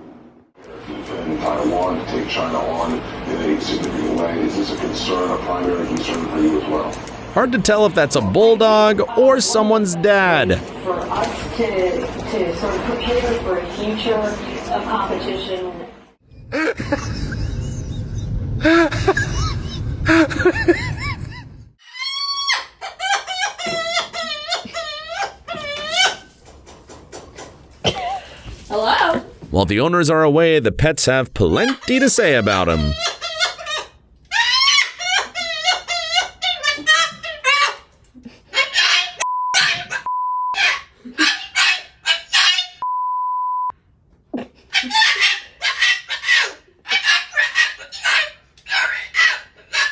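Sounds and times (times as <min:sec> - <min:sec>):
harsh voice-like calls: 0:21.8 - 0:26.4, 0:31.5 - 0:42.8, 0:44.7 - 0:49.9
dog whining and yelping: 0:21.8 - 0:26.5, 0:31.6 - 0:42.8, 0:44.7 - 0:49.9
censor bleep tone: 0:39.3 - 0:40.6, 0:42.8 - 0:43.8.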